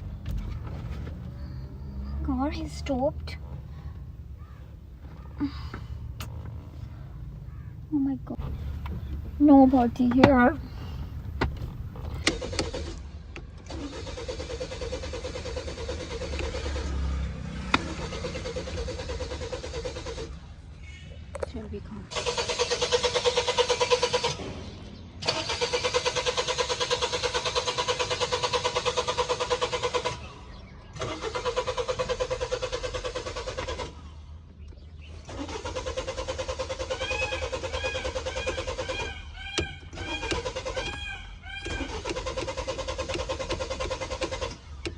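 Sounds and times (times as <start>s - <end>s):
car starter motor cranking: 0.0s - 20.6s, 22.1s - 44.9s.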